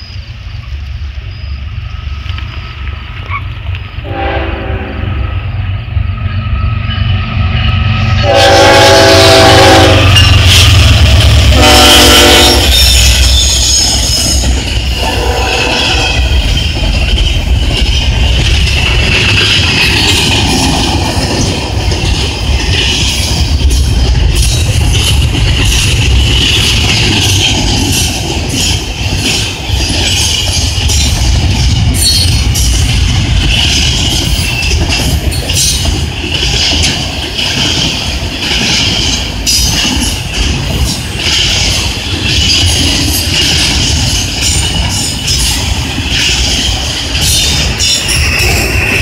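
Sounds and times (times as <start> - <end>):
diesel locomotive rumbling: 0.0 - 49.0
train wheels on rails: 0.0 - 49.0
train air horn blasts: 4.0 - 5.4, 8.2 - 10.5, 11.4 - 13.4, 15.0 - 16.2.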